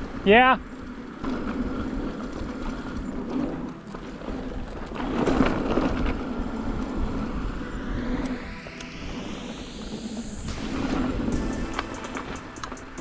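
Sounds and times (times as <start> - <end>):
faint rising whine: 3.9 - 13.0.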